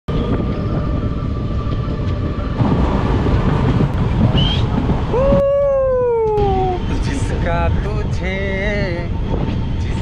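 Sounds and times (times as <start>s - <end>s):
train wheels rumbling on rails: 0.1s - 10.0s.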